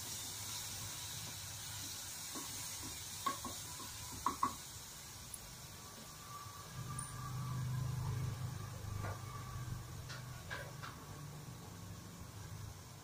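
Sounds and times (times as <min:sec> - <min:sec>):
paste sizzling in oil: 0:00.0 - 0:06.6.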